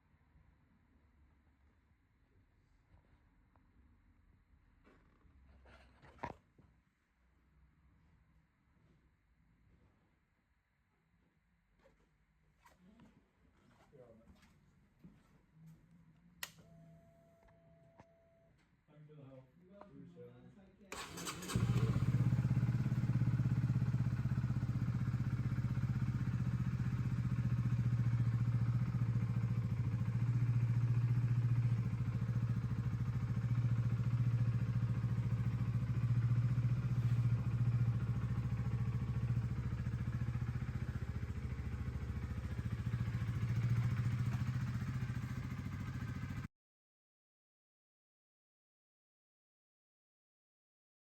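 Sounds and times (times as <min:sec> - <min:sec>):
motorcycle engine idling: 0:20.9 - 0:46.5.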